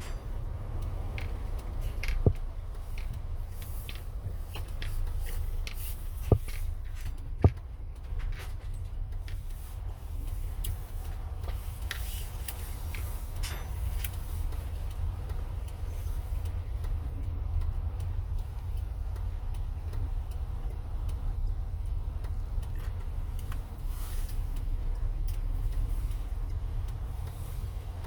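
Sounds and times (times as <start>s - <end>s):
engine and road rumble: 0.0s - 28.0s
light ticking clicks: 0.0s - 28.0s.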